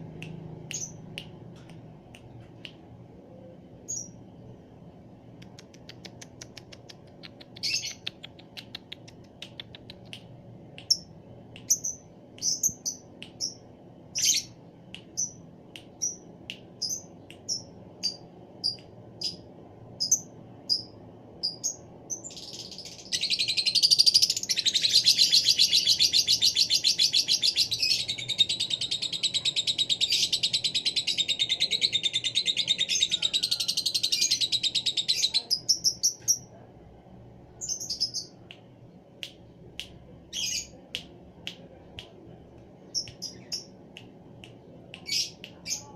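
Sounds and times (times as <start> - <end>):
lovebird chirping and trilling: 7.6 - 8.2, 37.6 - 38.3, 40.3 - 40.8, 42.9 - 43.7.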